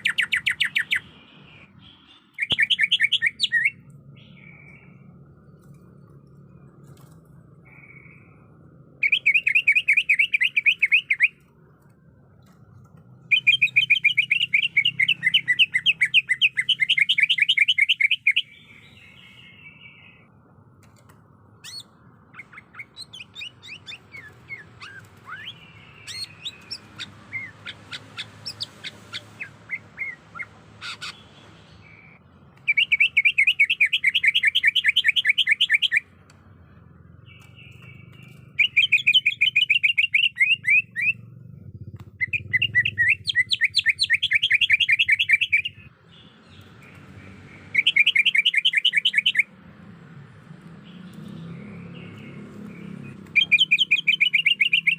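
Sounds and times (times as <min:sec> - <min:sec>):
sharp bird chirps: 0:00.0 - 0:11.5, 0:13.2 - 0:20.3, 0:21.5 - 0:49.6, 0:50.7 - 0:54.9
bird buzzy trills: 0:37.2 - 0:45.9.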